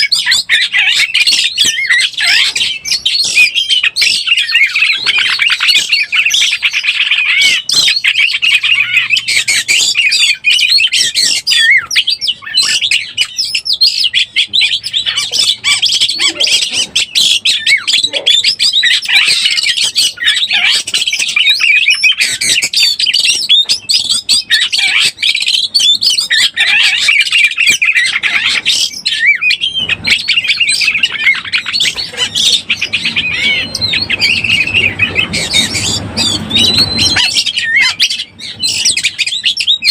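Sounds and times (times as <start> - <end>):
bird singing whistled notes: 17.0 - 39.9.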